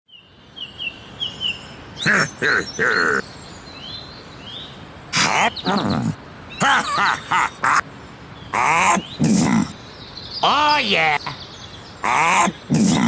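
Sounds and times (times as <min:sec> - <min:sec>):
cartoon character vocal sounds: 0:02.0 - 0:03.2, 0:05.2 - 0:07.8, 0:08.6 - 0:09.8, 0:12.0 - 0:13.0.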